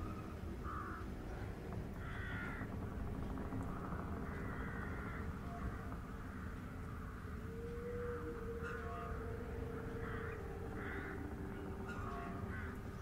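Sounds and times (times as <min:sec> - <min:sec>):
steady low hum: 0:00.0 - 0:13.0
bird calls: 0:03.6 - 0:13.0.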